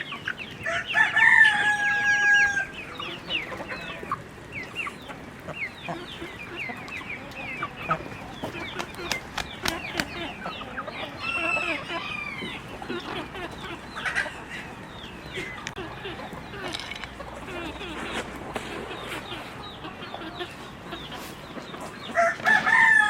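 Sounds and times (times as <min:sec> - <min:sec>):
chickens clucking: 0:00.0 - 0:23.0
rooster crowing: 0:00.6 - 0:02.7, 0:22.2 - 0:23.0.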